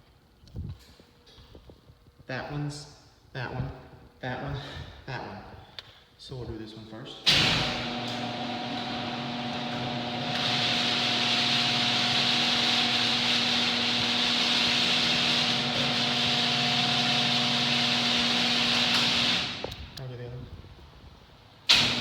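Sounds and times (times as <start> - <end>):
garage door opener motor hum: 7.3 - 20.0, 21.6 - 22.0.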